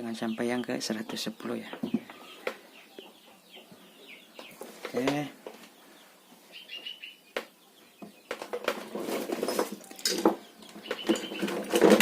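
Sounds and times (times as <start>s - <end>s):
bird chirping: 0.0s - 12.0s
clicks and rattling: 8.3s - 12.0s.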